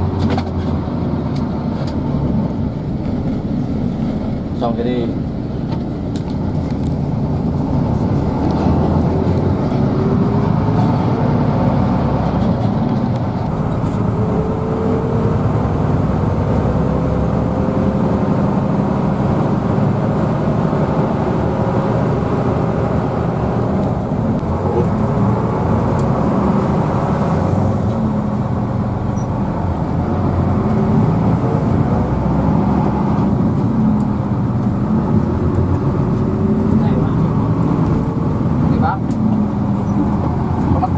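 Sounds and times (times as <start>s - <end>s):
bus engine running: 0.0s - 40.9s
road noise: 0.0s - 40.9s.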